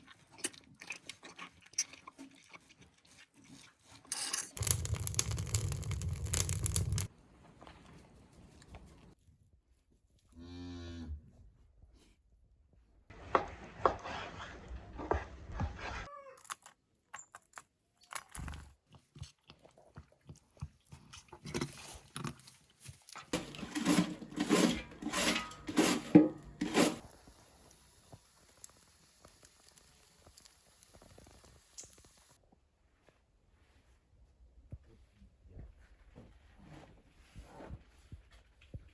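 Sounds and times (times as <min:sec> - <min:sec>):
knocking and crunching: 0:04.6 - 0:07.1, 0:23.1 - 0:27.0.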